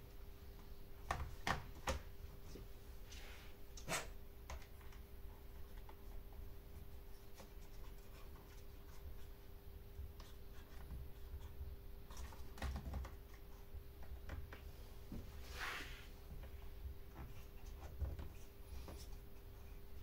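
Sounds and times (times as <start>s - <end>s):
faint steady hum: 0.0s - 20.0s
brief scrape: 15.4s - 16.1s.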